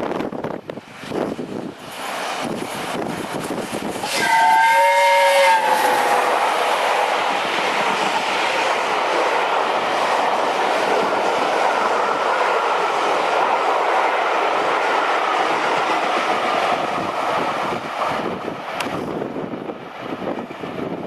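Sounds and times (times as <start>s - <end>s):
train wheels clattering on rails: 0.2s - 21.0s
steam locomotive whistle: 4.0s - 7.2s.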